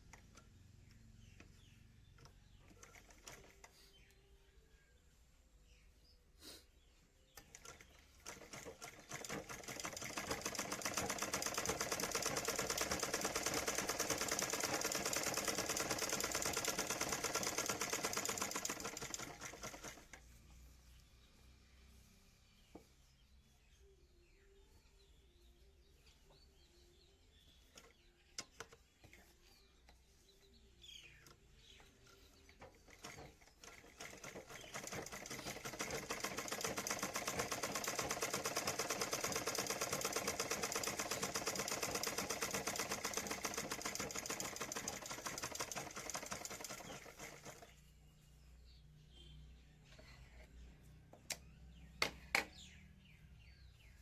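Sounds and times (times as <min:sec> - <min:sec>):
sewing machine running: 0:07.4 - 0:20.2, 0:32.6 - 0:47.8.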